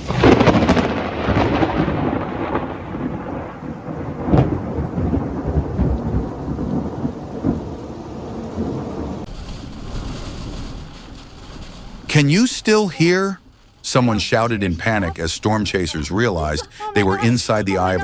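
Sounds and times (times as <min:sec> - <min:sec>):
thunder crashing and rumbling: 0:00.0 - 0:12.2
steady rain: 0:00.0 - 0:18.0.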